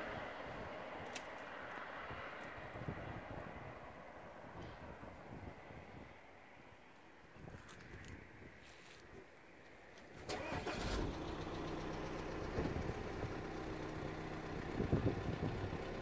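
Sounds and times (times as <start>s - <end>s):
car engine starting and running: 10.1s - 16.0s.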